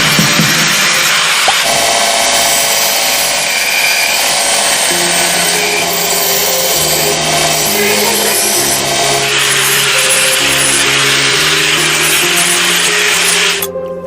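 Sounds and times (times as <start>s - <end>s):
power tool cutting: 0.0s - 13.8s
background music: 4.6s - 14.0s.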